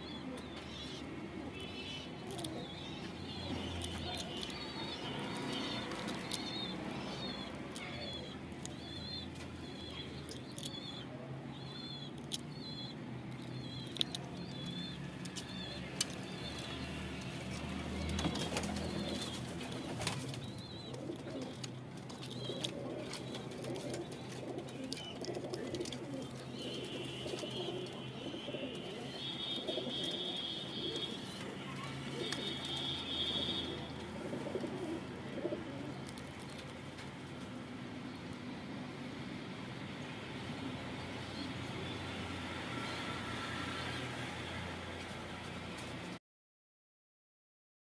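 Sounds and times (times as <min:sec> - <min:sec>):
pigeons cooing: 0:00.0 - 0:37.5.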